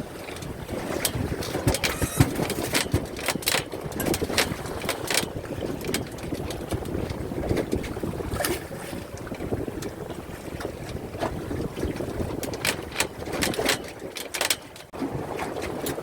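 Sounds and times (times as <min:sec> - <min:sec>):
water noise: 0:00.0 - 0:16.0
wind buffeting microphone: 0:00.0 - 0:16.0
sharp knocks and clicks: 0:01.0 - 0:05.3.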